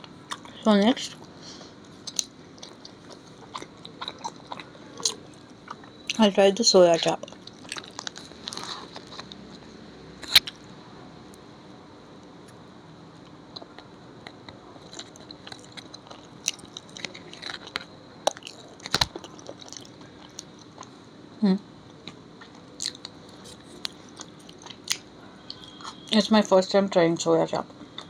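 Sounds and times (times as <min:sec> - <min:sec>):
chewing and wet mouth clicks: 0:02.0 - 0:06.2, 0:07.0 - 0:09.6, 0:13.6 - 0:20.9, 0:22.0 - 0:26.2.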